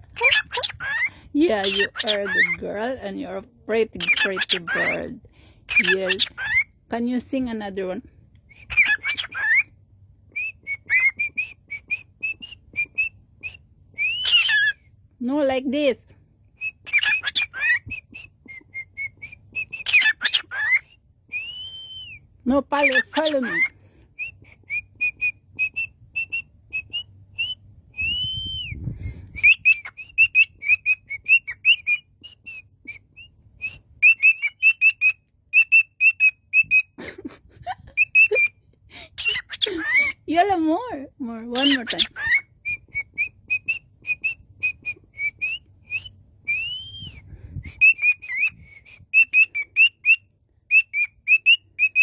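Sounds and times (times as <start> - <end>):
bird whistling: 8.5 - 9.7, 10.3 - 15.0, 16.6 - 22.2, 22.8 - 37.0, 41.6 - 52.0.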